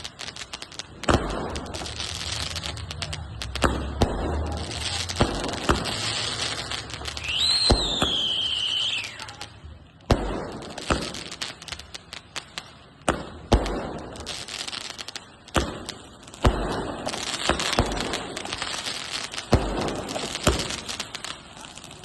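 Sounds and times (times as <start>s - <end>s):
firework bangs with crackle: 0.0s - 22.0s.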